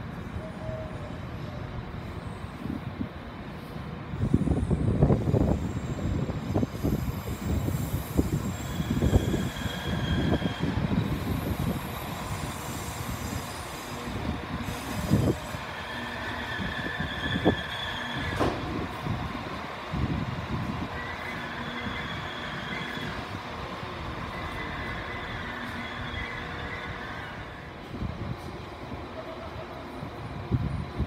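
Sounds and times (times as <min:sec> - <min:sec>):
high squeal of wheels: 0:04.4 - 0:18.6, 0:21.0 - 0:23.4, 0:24.3 - 0:27.7.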